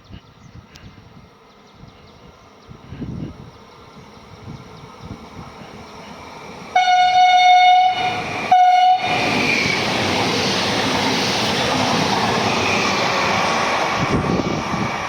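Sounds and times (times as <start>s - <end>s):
train passing rush: 1.0s - 15.0s
train horn blasts: 6.7s - 9.2s.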